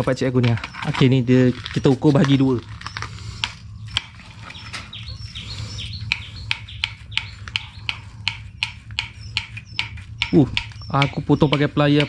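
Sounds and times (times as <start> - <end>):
birds chirping: 0.0 - 12.0
steady low hum: 0.0 - 12.0
sharp clicks: 6.1 - 12.0.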